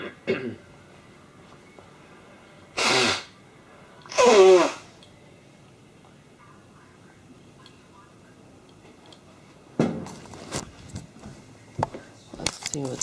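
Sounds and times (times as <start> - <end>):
person sneezing: 2.8 - 3.3, 4.1 - 4.9.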